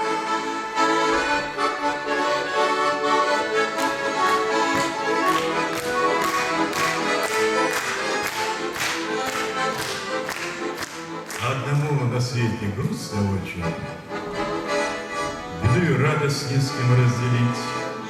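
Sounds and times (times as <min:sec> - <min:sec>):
accordion-led instrumental music: 0:00.0 - 0:18.0
steady beat: 0:03.9 - 0:11.2.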